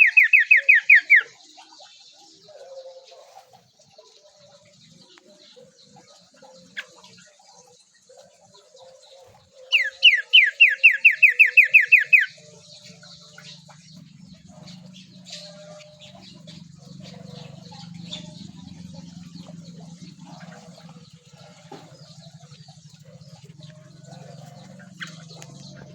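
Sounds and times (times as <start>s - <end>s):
faint bird chirps: 0.0s - 25.9s
low steady hum: 12.2s - 25.9s.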